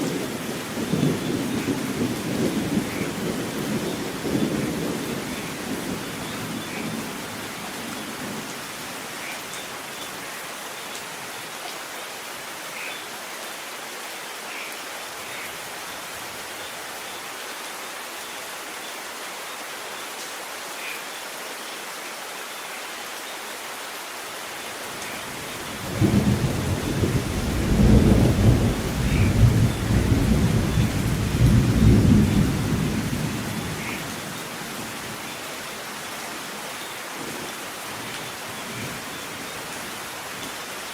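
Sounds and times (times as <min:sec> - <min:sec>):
low rumble of thunder: 0:00.0 - 0:07.5, 0:25.8 - 0:34.2
steady rain: 0:00.0 - 0:40.9.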